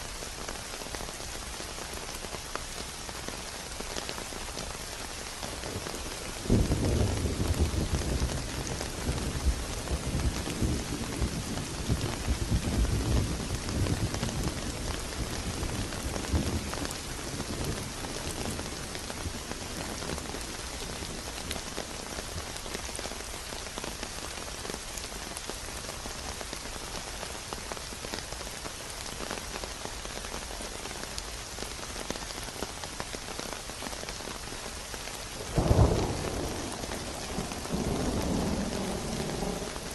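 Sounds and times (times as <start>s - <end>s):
rain pattering: 0.0s - 39.9s
low thunder rumble: 35.5s - 39.9s.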